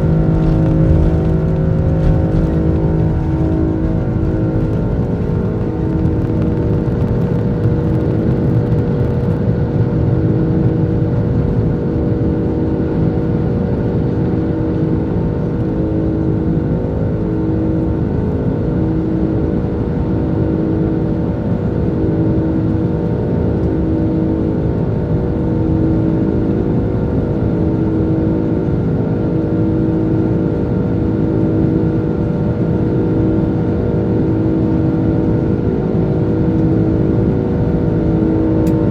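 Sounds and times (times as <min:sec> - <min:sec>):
steady humming tones: 0:00.0 - 0:08.1
jet engines droning in cabin: 0:00.0 - 0:38.9.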